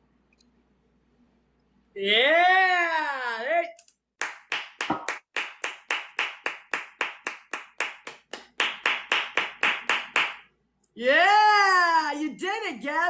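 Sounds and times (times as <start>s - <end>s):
person clapping: 4.2s - 10.5s.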